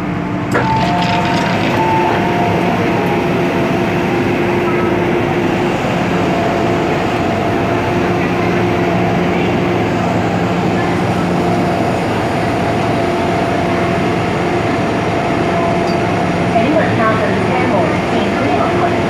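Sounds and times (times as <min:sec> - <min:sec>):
train wheels rumbling on track: 0:00.0 - 0:19.0
traction motor hum: 0:00.5 - 0:10.9.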